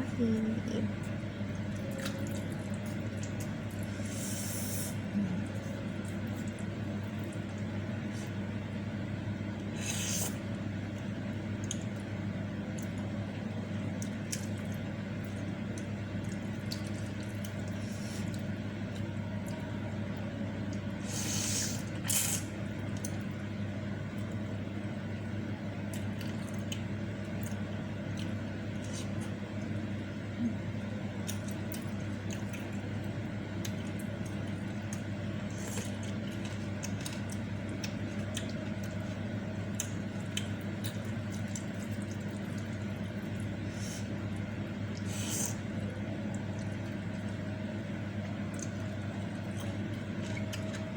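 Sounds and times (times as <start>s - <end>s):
steady low hum: 0.0s - 50.9s
wet chewing and lip smacks: 31.2s - 32.9s, 33.6s - 43.6s, 48.2s - 50.9s.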